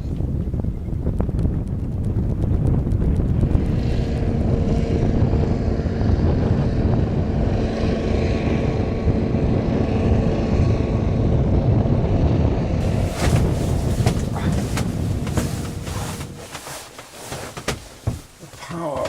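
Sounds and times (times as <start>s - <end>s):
heavy low rumble: 8.4s - 19.0s.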